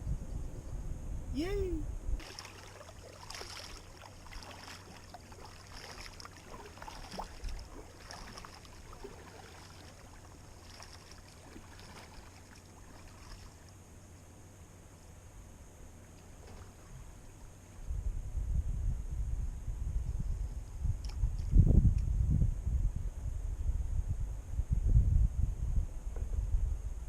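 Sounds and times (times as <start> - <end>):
paddle splashes and drips: 2.2 - 13.8, 16.1 - 17.4.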